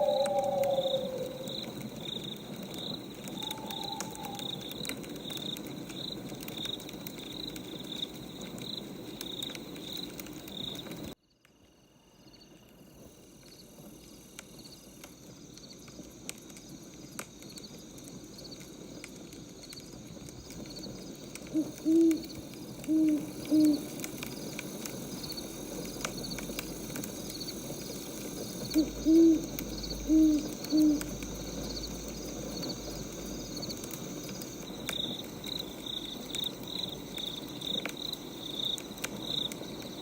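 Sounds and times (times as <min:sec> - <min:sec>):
owl hooting: 0:00.0 - 0:02.0, 0:03.1 - 0:04.9, 0:21.5 - 0:24.1, 0:28.6 - 0:31.6
wood fire crackling: 0:00.0 - 0:11.2, 0:12.7 - 0:40.0
cricket chirping: 0:00.0 - 0:40.0.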